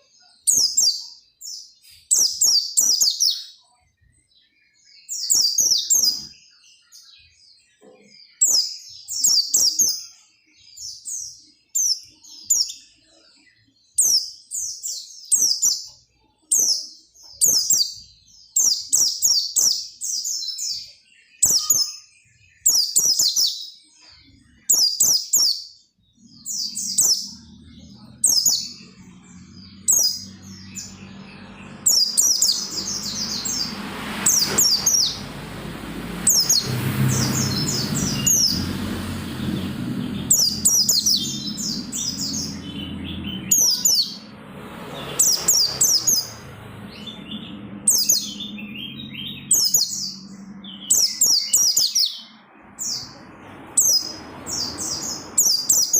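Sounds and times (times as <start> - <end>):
bird twittering: 36.3 - 44.3, 44.9 - 55.9.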